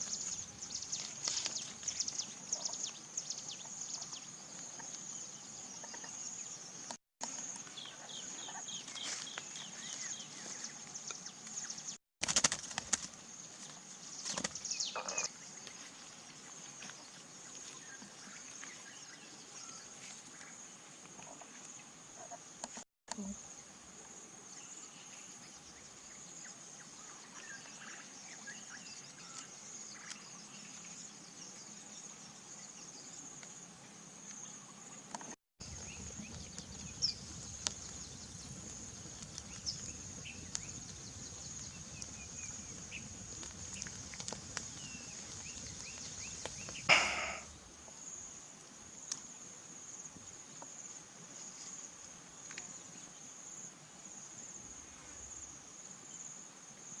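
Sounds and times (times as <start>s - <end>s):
insect drone: 23.2s - 57.0s
faint chirps: 34.2s - 48.3s.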